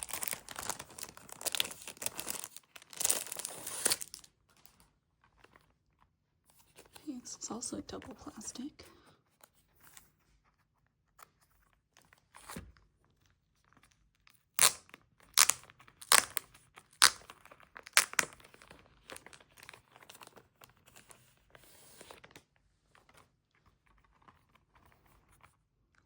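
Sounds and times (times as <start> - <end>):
plastic wrap tearing: 0.0 - 4.3, 14.5 - 19.7
plastic rustling: 0.0 - 4.8.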